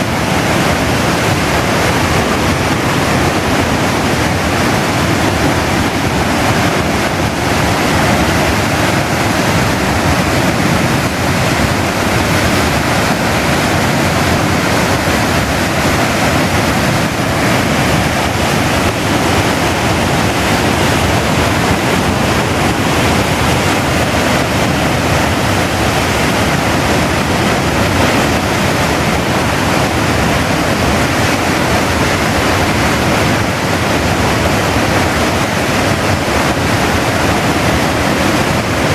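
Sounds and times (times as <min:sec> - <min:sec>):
water roaring over a weir: 0:00.0 - 0:38.9.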